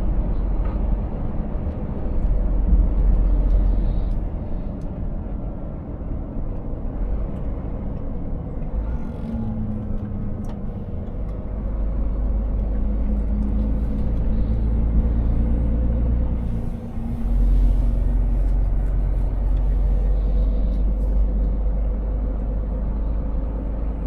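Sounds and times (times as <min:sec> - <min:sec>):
deep road rumble: 0:00.0 - 0:24.0
truck engine running: 0:06.7 - 0:24.0.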